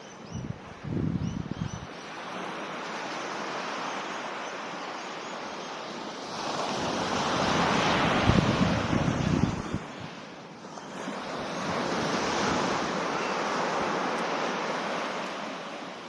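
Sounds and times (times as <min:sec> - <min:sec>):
wind buffeting microphone: 0:00.3 - 0:01.9, 0:07.4 - 0:10.2
waves washing on beach: 0:01.9 - 0:16.0.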